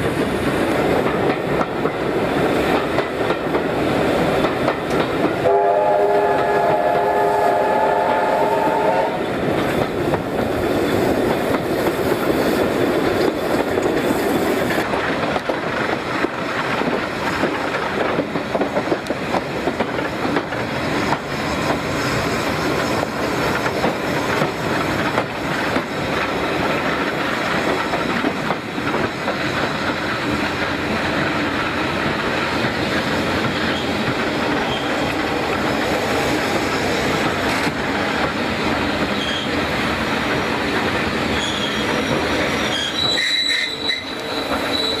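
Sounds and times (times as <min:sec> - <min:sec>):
train wheels clattering: 0:00.0 - 0:45.0
train whistle: 0:05.4 - 0:09.3, 0:41.4 - 0:45.0.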